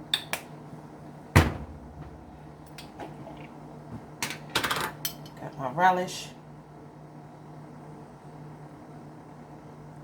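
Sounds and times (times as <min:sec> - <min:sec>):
solid thump: 0:01.4 - 0:02.4.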